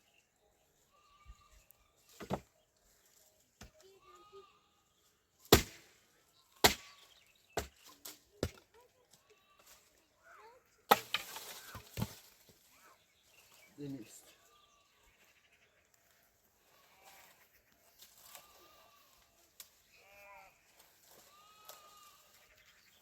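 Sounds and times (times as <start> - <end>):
faint animal or bird calls: 12.7 - 19.2.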